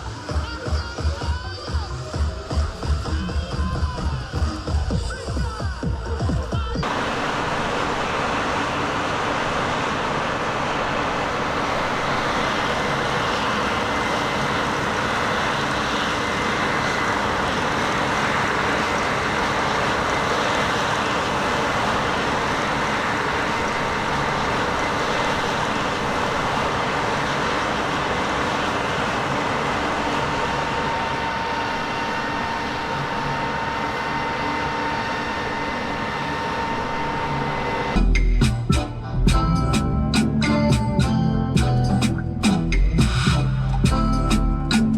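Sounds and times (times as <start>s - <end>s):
farm machinery running: 6.8s - 38.0s
thin mechanical whine: 6.8s - 38.1s.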